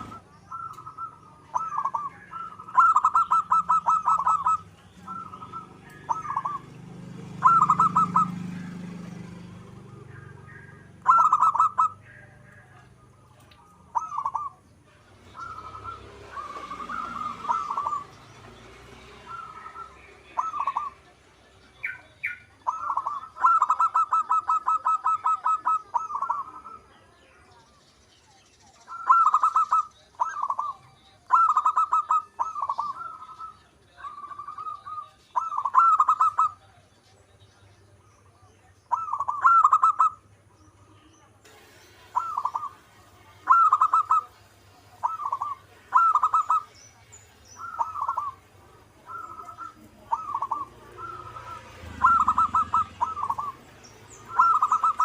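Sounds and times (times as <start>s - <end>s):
dove cooing: 0.0s - 21.2s, 21.8s - 27.0s, 28.8s - 36.8s, 38.9s - 40.3s, 41.5s - 55.0s.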